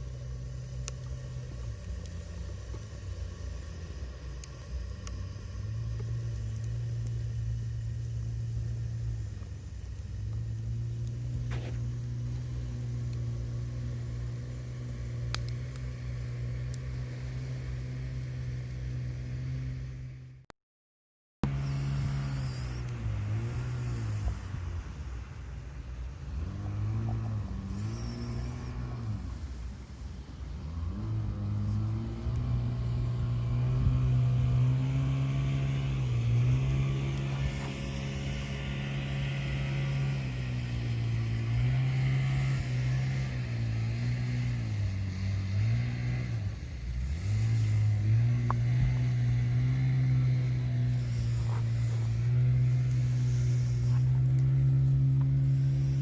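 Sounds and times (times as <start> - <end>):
low mechanical hum: 0.0 - 20.5, 21.4 - 56.0
faint clicks: 0.7 - 3.5, 4.2 - 7.3, 15.3 - 15.9.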